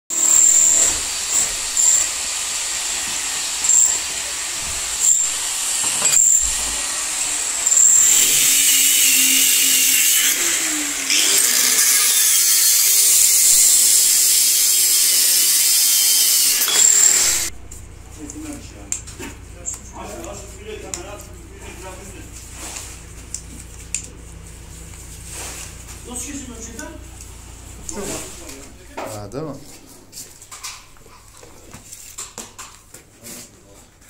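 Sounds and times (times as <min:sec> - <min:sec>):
power tool running: 0:00.1 - 0:18.6.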